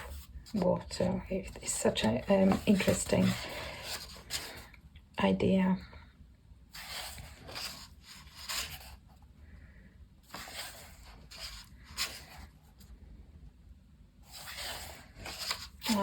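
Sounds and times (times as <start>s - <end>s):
paper pages rustling: 0.0s - 4.7s, 6.8s - 9.0s, 10.3s - 12.6s, 14.3s - 16.0s.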